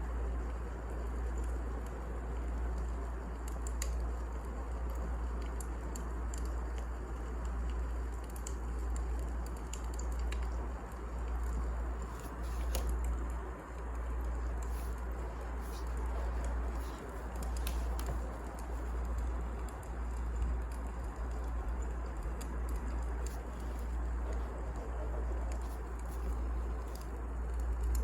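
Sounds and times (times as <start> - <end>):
wood fire burning in a fireplace: 0.0 - 28.0.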